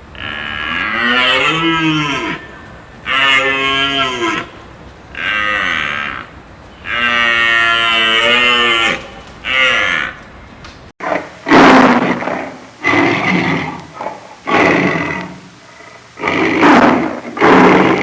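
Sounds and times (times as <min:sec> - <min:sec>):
cattle mooing: 0:00.0 - 0:10.9.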